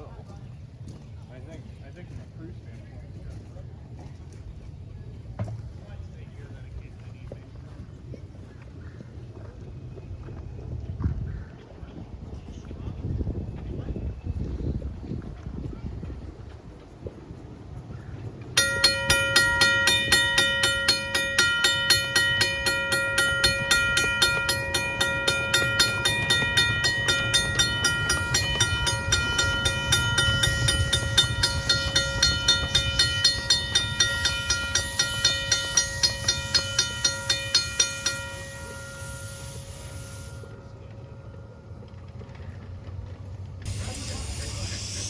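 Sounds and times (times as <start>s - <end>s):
railroad bell ringing: 18.6s - 45.0s.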